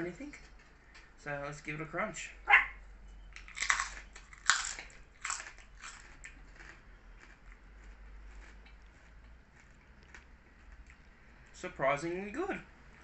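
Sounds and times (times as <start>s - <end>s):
crunching pork crackle: 3.4s - 11.7s.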